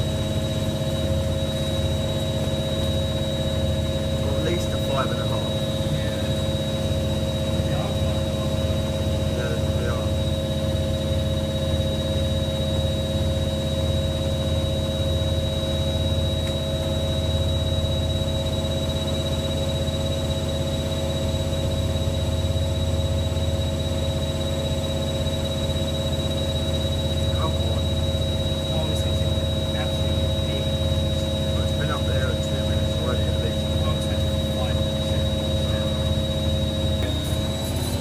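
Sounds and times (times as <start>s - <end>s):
washing machine spinning: 0.0s - 38.0s.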